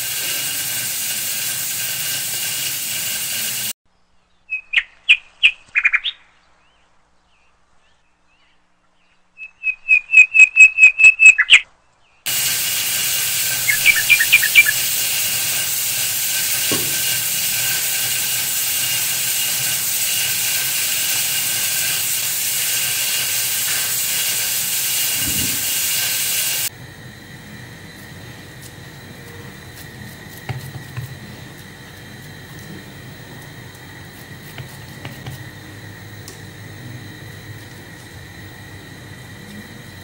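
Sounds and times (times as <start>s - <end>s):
steady loud hiss: 0.0s - 3.8s, 12.3s - 40.0s
songbird chirping: 3.9s - 12.3s.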